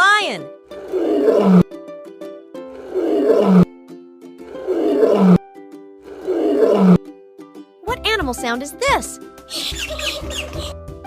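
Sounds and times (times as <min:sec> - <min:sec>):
light background music: 0:00.0 - 0:11.0
lion roaring: 0:00.7 - 0:01.7, 0:02.7 - 0:03.7, 0:04.5 - 0:05.4, 0:06.1 - 0:07.0.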